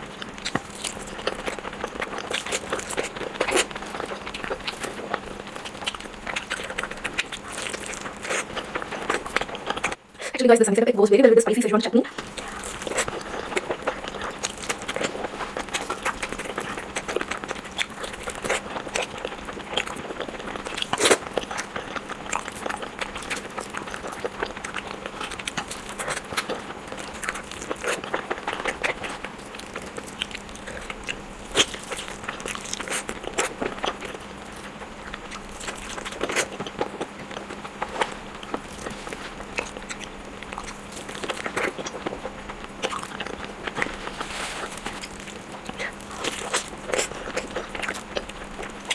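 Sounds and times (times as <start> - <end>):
close-miked biting and chewing: 0.0 - 10.4, 12.1 - 48.9.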